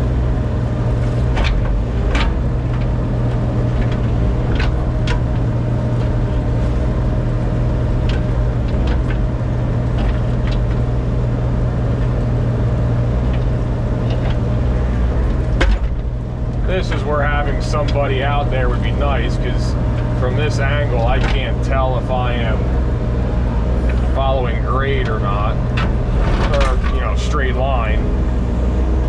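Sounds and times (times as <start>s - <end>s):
engine humming: 0.0s - 29.0s
sharp clicks and knocks: 1.0s - 6.6s, 8.0s - 10.9s, 13.2s - 17.0s, 20.9s - 21.7s, 24.9s - 27.2s.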